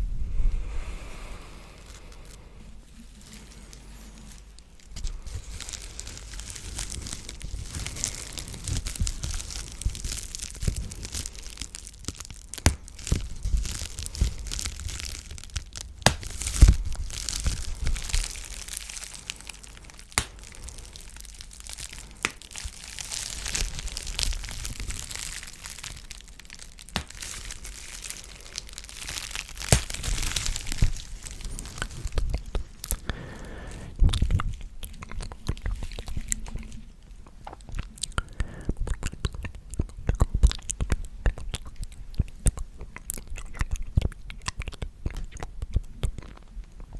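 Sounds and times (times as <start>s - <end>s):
crackly rustling: 1.6s - 33.3s.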